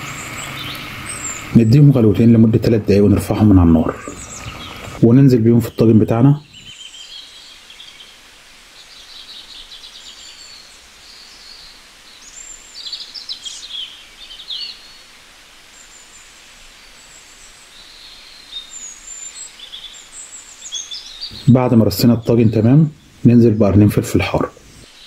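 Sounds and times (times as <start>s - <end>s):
faint steady hiss: 0.0s - 25.0s
small birds chirping and trilling: 0.0s - 25.0s.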